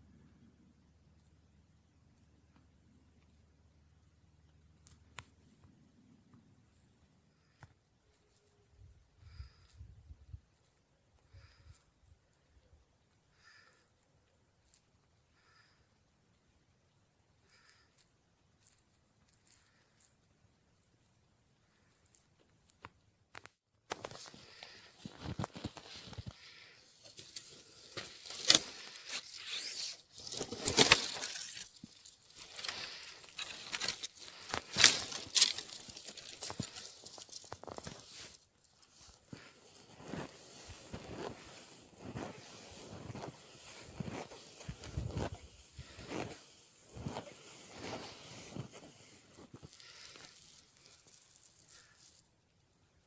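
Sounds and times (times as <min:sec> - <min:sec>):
footsteps crunching through snow: 0:24.0 - 0:52.3.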